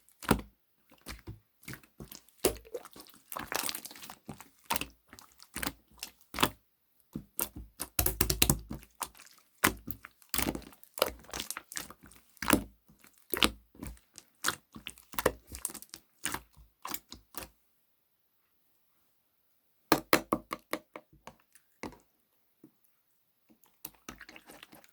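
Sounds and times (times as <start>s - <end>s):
slime popping and crackling: 1.0s - 6.6s, 7.3s - 12.6s.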